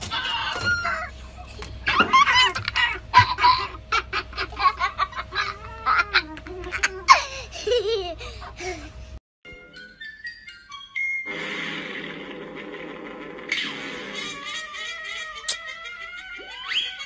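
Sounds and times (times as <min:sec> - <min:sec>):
laughter in quick bursts: 0:02.2 - 0:08.8.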